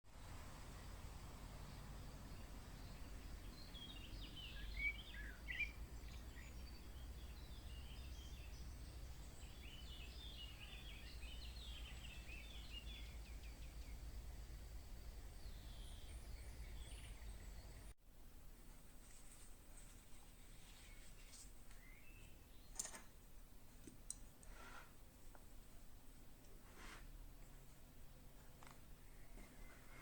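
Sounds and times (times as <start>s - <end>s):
birds chirping: 0.8s - 17.9s.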